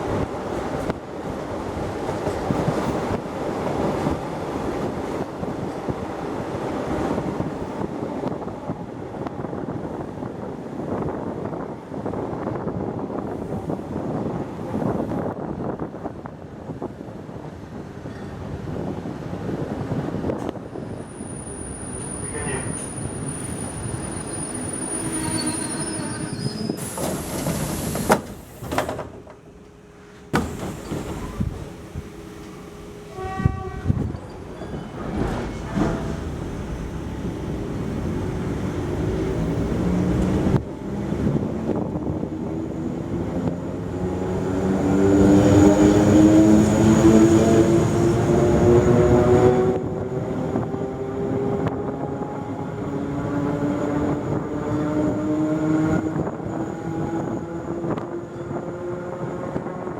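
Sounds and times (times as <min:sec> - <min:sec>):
brief horn-like tone: 0:24.3 - 0:26.8, 0:33.1 - 0:34.2.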